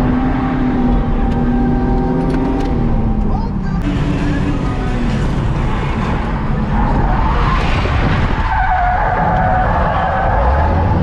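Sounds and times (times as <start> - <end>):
car engine running hard: 0.0 - 11.0.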